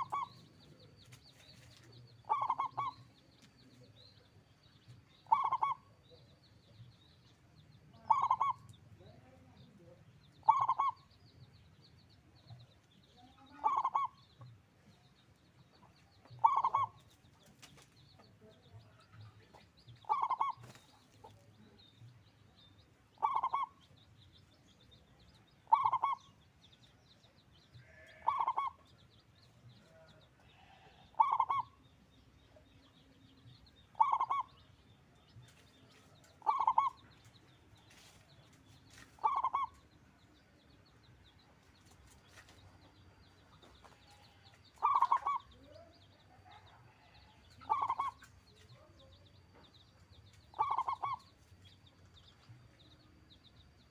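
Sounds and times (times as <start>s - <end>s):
dove cooing: 0.0s - 0.3s, 2.2s - 3.0s, 5.2s - 5.9s, 8.0s - 8.6s, 10.4s - 11.0s, 13.5s - 14.1s, 16.4s - 17.0s, 20.1s - 20.6s, 23.2s - 23.7s, 25.7s - 26.2s, 28.2s - 28.8s, 31.2s - 31.7s, 34.0s - 34.5s, 36.4s - 37.0s, 39.2s - 39.7s, 44.8s - 45.5s, 47.6s - 48.2s, 50.6s - 51.2s.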